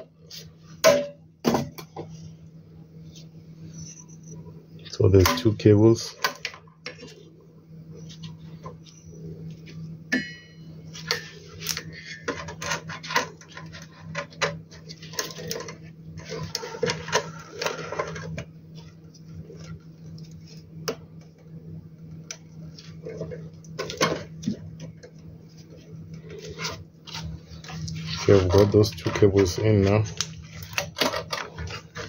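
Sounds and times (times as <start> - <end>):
steady low hum: 0.0 - 32.0
plastic parts clicking and rattling: 30.2 - 32.0.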